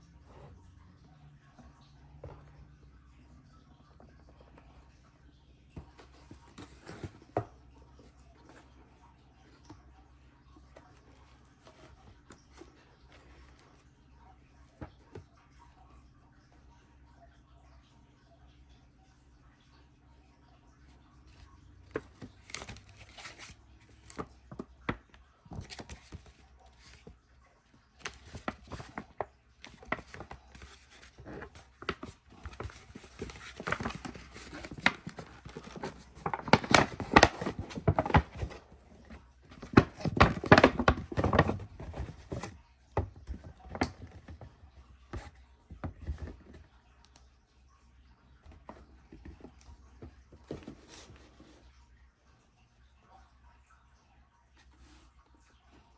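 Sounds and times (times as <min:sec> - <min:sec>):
paper packaging rustling: 0:21.9 - 0:25.0, 0:25.6 - 0:27.1, 0:28.0 - 0:44.5.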